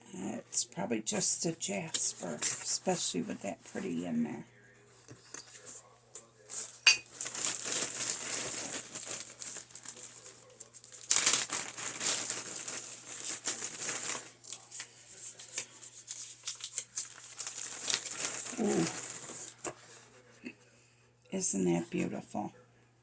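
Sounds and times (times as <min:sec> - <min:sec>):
packing paper crinkling: 0:04.9 - 0:20.4.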